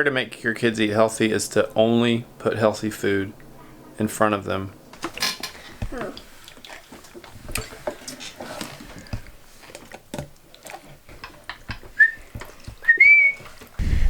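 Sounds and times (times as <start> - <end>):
dishes and utensils clicking: 4.9 - 13.7.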